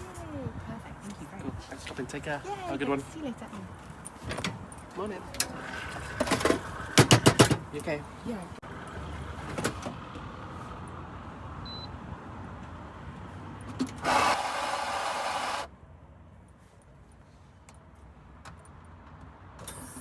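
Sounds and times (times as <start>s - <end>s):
coffee machine whirring and hissing: 5.4s - 7.6s, 14.0s - 15.7s.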